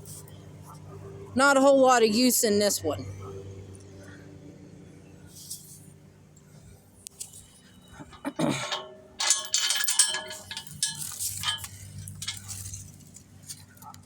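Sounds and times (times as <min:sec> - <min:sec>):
metallic clanking and rattling: 0:07.2 - 0:14.0.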